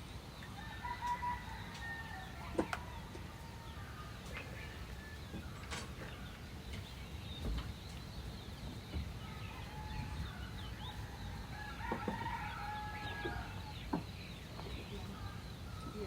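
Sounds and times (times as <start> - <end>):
small birds chirping: 0.0 - 16.0
rooster crowing: 0.6 - 4.1, 9.3 - 13.9.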